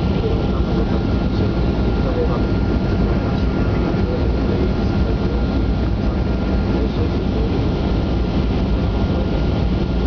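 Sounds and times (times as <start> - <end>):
high engine whine: 0.0 - 10.0
jet engines rumbling: 0.0 - 10.0.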